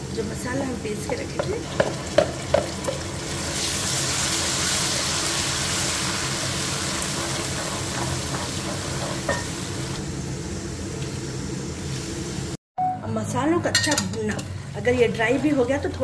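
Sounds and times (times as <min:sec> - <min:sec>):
paste sizzling in oil: 0:00.6 - 0:12.6
wooden spoon knocking pot: 0:01.0 - 0:03.1.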